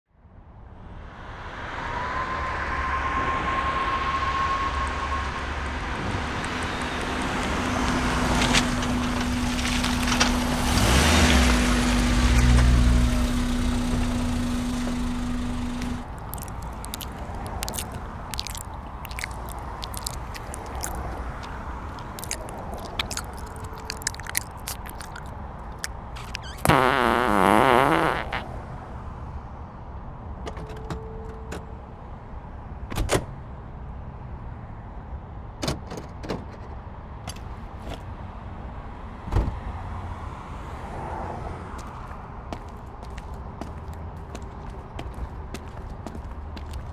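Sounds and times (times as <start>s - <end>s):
car interior rumble: 7.5s - 26.7s.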